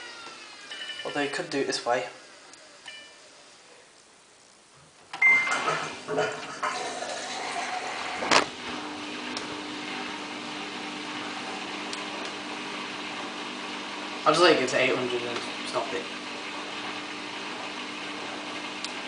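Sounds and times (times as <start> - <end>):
washing machine motor hum: 5.1 - 19.0.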